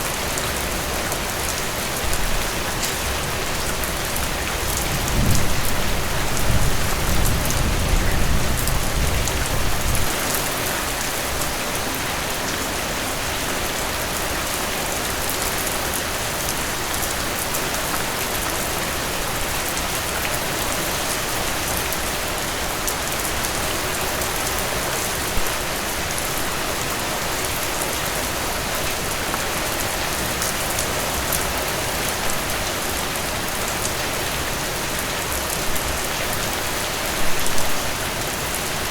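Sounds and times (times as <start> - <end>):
heavy rain: 0.0 - 38.9
low thunder rumble: 4.8 - 10.2.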